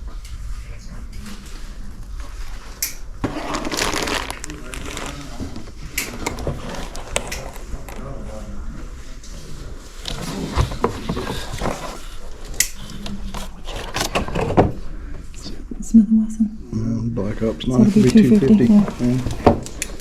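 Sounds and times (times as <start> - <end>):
indistinct voices: 14.9 - 20.0.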